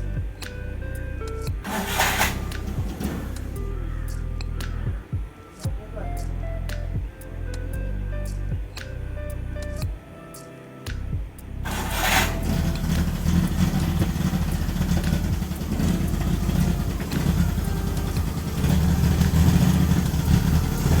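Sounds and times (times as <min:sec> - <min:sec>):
petrol engine running: 0:01.6 - 0:03.6, 0:11.7 - 0:21.0.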